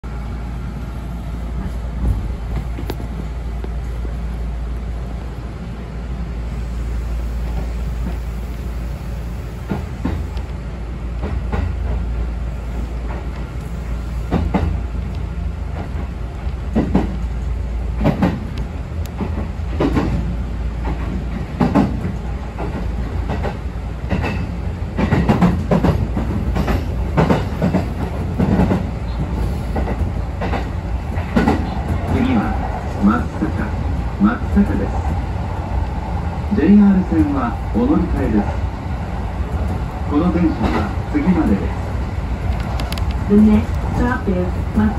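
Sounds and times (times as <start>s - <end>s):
train rumble: 0.0s - 44.9s
wheels clacking over rail joints: 18.0s - 32.8s.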